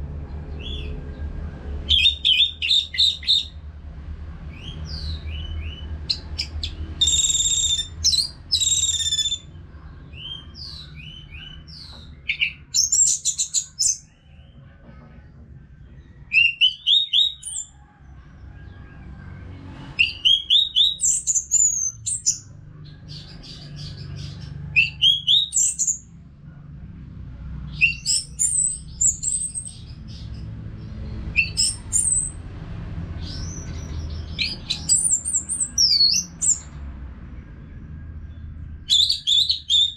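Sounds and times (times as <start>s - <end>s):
bird singing whistles and chirps: 1.9s - 3.6s, 4.5s - 9.5s, 10.2s - 14.1s, 20.0s - 22.4s, 24.8s - 26.0s, 27.7s - 30.2s, 31.4s - 32.4s, 33.2s - 36.7s, 38.9s - 39.9s.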